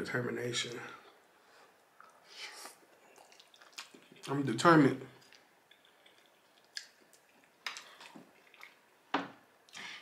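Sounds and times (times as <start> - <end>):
wet chewing mouth sounds: 1.9 - 4.3, 5.2 - 8.8.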